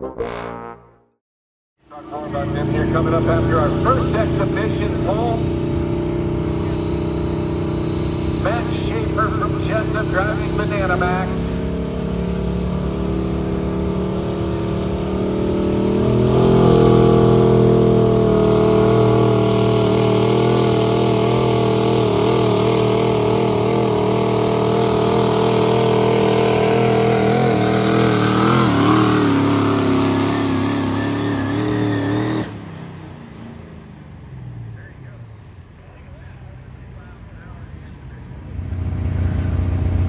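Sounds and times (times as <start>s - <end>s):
engine at full throttle: 1.8s - 40.0s.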